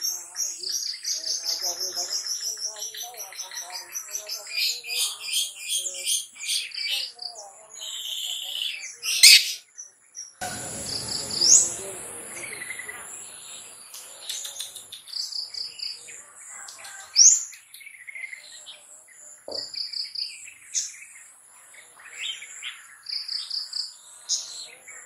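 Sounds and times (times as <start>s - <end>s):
shrike singing: 7.8s - 9.6s, 10.4s - 16.2s
high thin tone: 10.4s - 12.9s.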